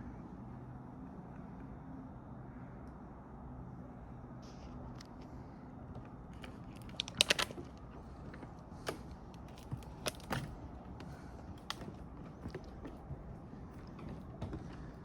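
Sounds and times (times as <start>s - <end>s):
footsteps on wooden boardwalk: 7.4s - 15.0s.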